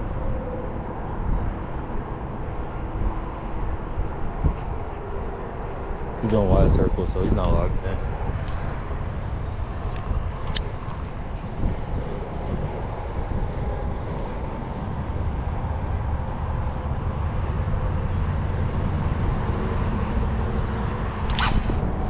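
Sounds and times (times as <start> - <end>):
outdoor background rumble: 0.0 - 22.0
sharp click: 21.2 - 22.0.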